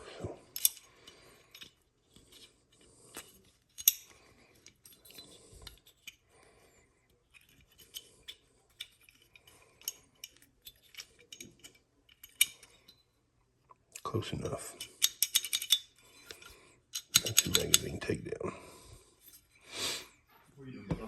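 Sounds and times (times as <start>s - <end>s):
small metal clicks and scraping: 0.5s - 6.4s, 7.1s - 13.1s, 14.4s - 18.1s.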